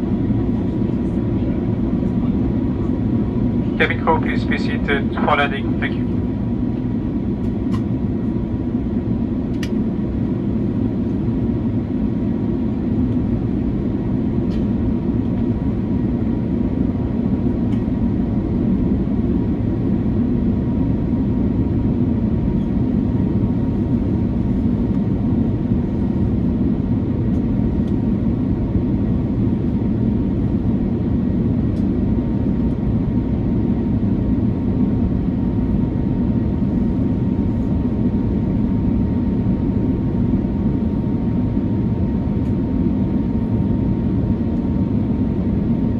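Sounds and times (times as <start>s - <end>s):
aircraft cabin engine drone: 0.0s - 45.9s.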